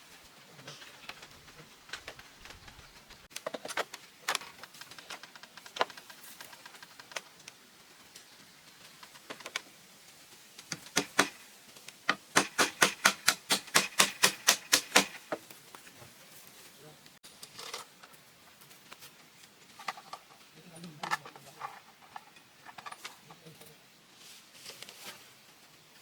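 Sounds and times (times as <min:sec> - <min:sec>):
sharp knocks: 0:12.2 - 0:15.4.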